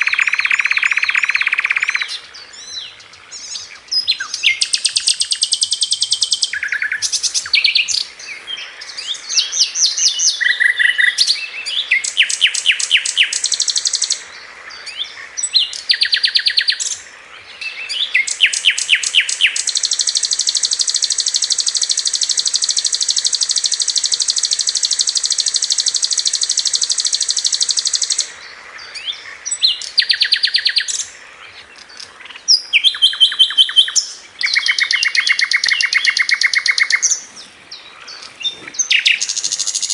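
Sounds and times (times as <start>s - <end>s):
bird singing rapid trills: 0.0s - 39.9s.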